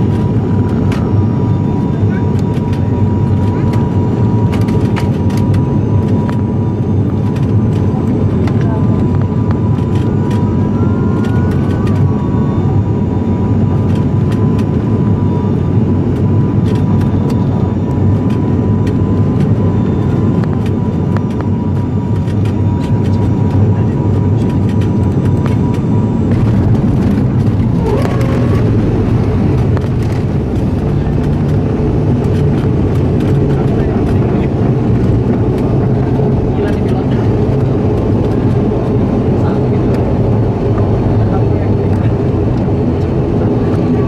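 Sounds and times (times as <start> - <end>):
turboprop engines droning: 0.0 - 44.0
thin steady whine: 24.6 - 44.0.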